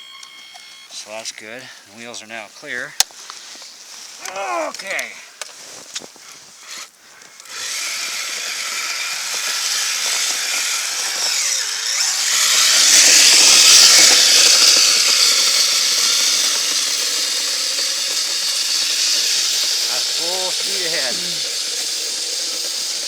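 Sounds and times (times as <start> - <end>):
toy electric motor whirring: 6.6 - 23.0.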